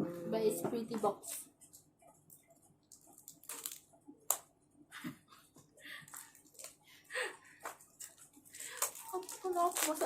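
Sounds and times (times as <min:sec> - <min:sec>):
cardboard and plastic rustling: 0:07.5 - 0:10.0.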